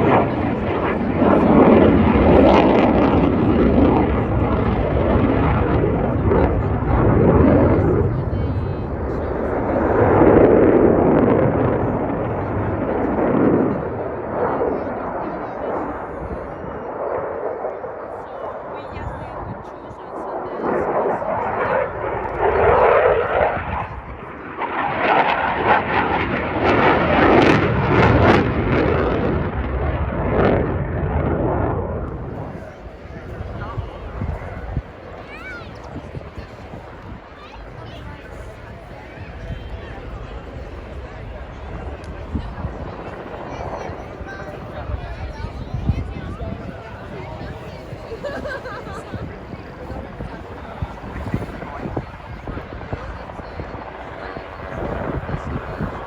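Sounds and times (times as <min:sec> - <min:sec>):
aircraft engine rushing past: 0:00.0 - 0:56.0.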